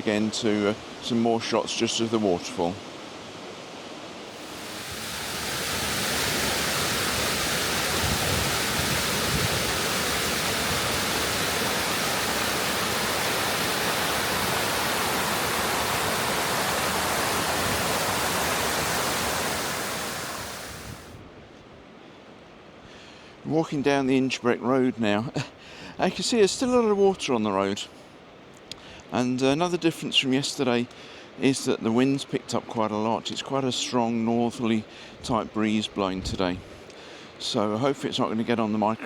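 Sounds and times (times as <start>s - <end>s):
waterfall rushing: 4.3s - 21.1s.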